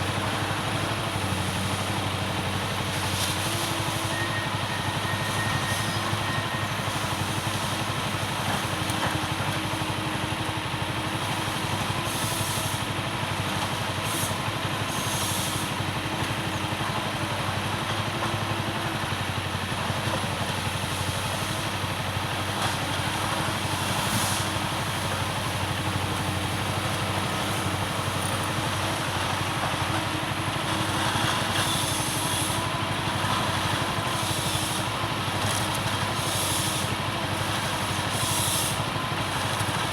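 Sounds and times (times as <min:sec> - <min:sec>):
harvester engine running: 0:00.0 - 0:39.9.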